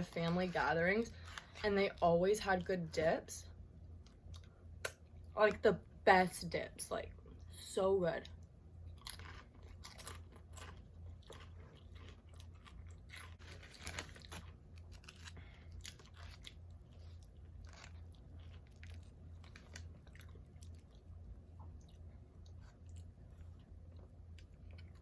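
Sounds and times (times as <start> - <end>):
person chewing crunchy chips: 8.8 - 25.0.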